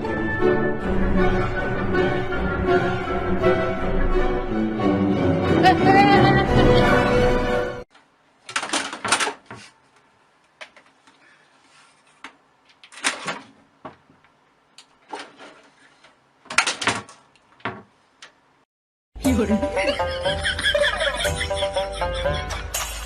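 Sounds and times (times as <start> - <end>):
household objects knocking and rattling: 8.5 - 9.6, 16.5 - 17.9.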